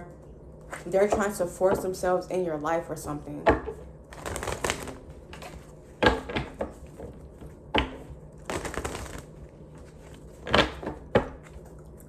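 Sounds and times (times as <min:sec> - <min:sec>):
cards riffle shuffling: 0:04.2 - 0:05.6, 0:08.5 - 0:09.3
cards snapping and knocking: 0:04.2 - 0:06.5, 0:08.5 - 0:09.3.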